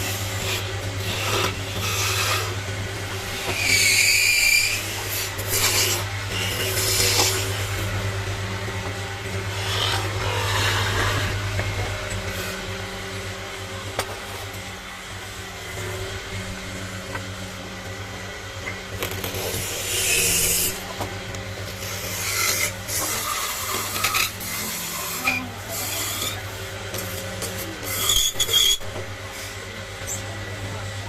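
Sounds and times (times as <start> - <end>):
carving tool rasping wood: 0.0 - 2.5, 21.8 - 26.4
steady low hum: 0.0 - 27.8.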